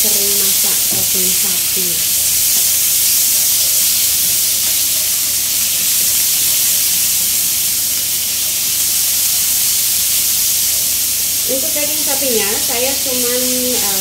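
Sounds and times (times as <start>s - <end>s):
meat sizzling in a frying pan: 0.0s - 14.0s.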